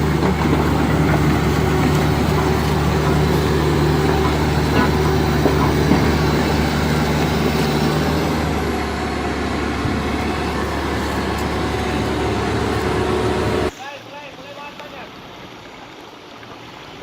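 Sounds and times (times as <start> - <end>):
pickup engine droning under load: 0.0 - 13.7.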